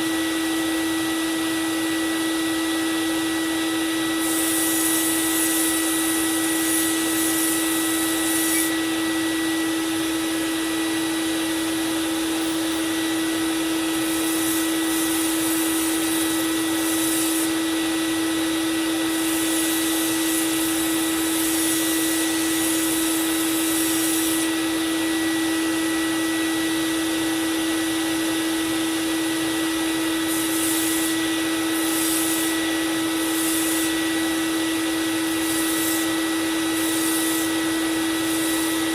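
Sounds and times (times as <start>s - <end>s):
belt sander motor humming: 0.0s - 38.9s
knife blade grinding on belt: 6.8s - 8.8s.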